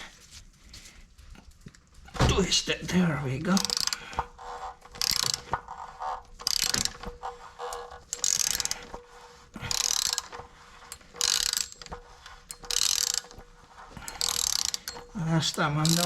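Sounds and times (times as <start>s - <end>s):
ratchet wrench clicking: 3.6s - 9.0s, 9.6s - 13.4s, 14.0s - 16.0s.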